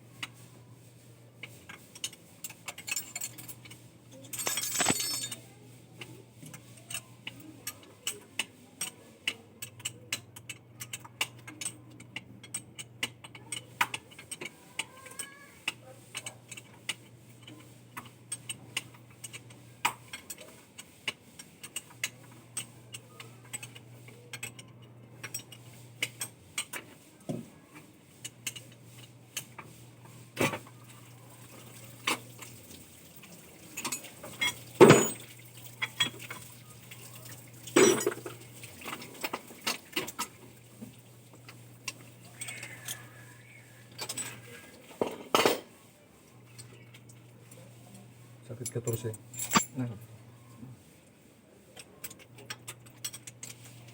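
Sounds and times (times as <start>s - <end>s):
metal tools clinking: 1.8s - 5.5s, 33.8s - 36.4s, 37.6s - 40.3s, 43.9s - 45.7s, 48.5s - 50.0s.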